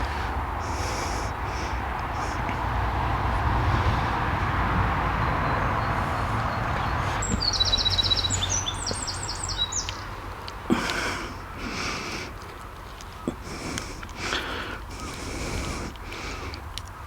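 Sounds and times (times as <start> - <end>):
outdoor background noise: 0.0 - 17.0
songbird high chirping: 5.0 - 11.8.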